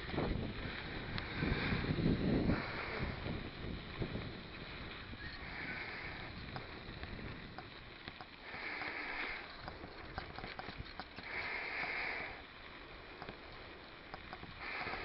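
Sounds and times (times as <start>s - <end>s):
bike clicks and rattles: 0.0s - 15.0s
cyclist breathing hard: 0.0s - 15.0s
mountain bike tyre noise: 0.0s - 15.0s.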